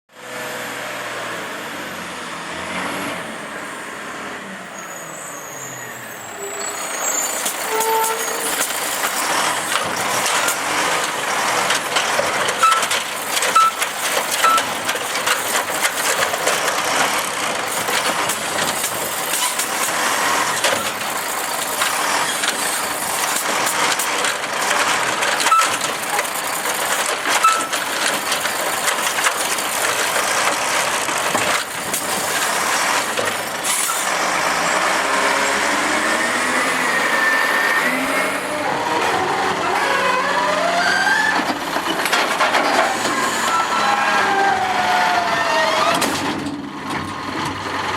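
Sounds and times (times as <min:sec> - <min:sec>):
garbage truck engine rumbling: 0:00.2 - 0:47.9
brief high squeaks: 0:04.8 - 0:08.7, 0:27.4 - 0:27.8.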